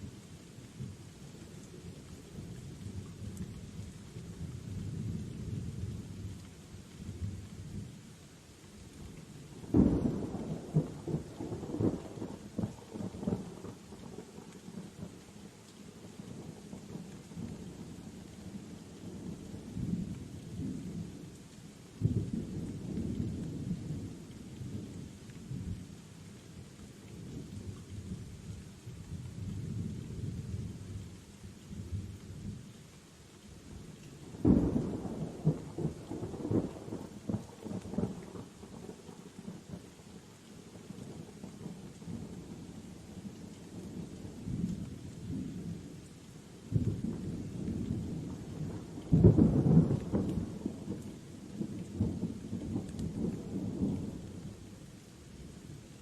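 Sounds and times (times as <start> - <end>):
steady rain: 0.0 - 56.0
rolling thunder: 46.8 - 51.0.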